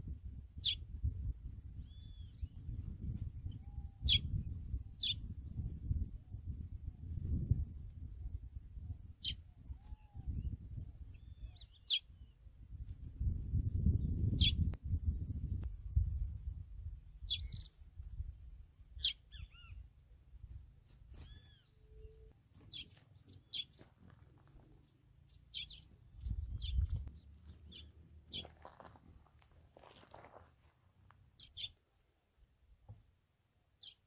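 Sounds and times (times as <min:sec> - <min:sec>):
small bird chirping: 0:00.6 - 0:00.8, 0:01.4 - 0:05.6, 0:09.2 - 0:12.4, 0:13.6 - 0:15.7, 0:16.5 - 0:17.8, 0:19.0 - 0:19.9, 0:21.1 - 0:28.6, 0:31.4 - 0:31.8, 0:33.8 - 0:34.0.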